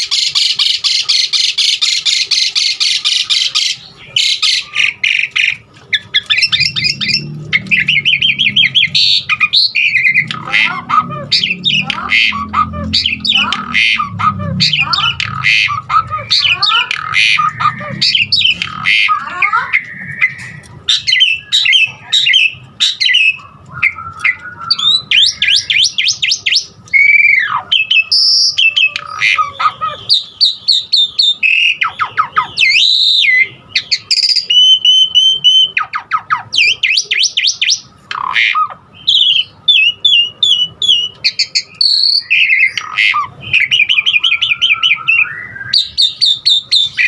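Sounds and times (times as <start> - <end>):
starling singing: 0.0 - 47.0.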